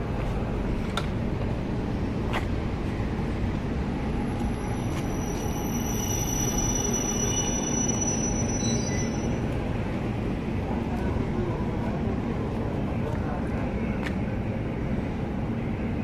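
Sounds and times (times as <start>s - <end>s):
train low rumble: 0.0s - 16.0s
high thin squeal: 4.4s - 9.4s.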